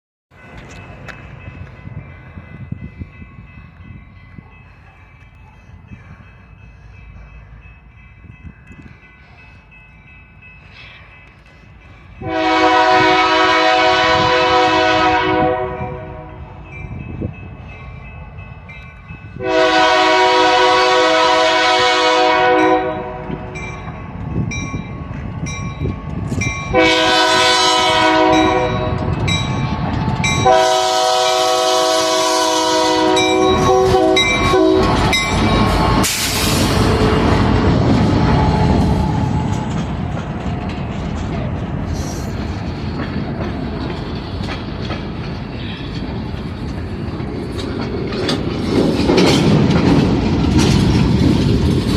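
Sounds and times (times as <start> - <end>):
train rumbling past: 0.3 - 51.9
locomotive horn blasts: 12.2 - 16.4, 19.4 - 23.4, 26.7 - 29.1, 30.4 - 35.0
wheels clacking over rail joints: 33.1 - 51.9.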